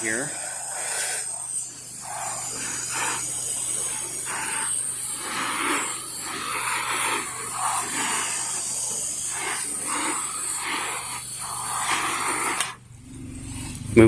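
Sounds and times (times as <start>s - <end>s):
pressure washer spraying: 0.0s - 12.8s
low hum: 0.0s - 14.0s.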